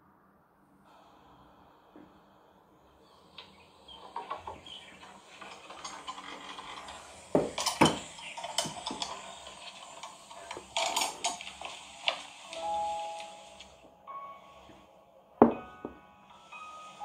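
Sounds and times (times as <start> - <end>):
dishes and utensils clinking: 4.0 - 12.3.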